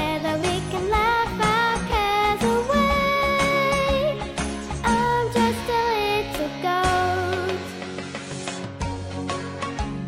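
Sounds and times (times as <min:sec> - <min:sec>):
upbeat cartoon theme music: 0:00.0 - 0:10.0.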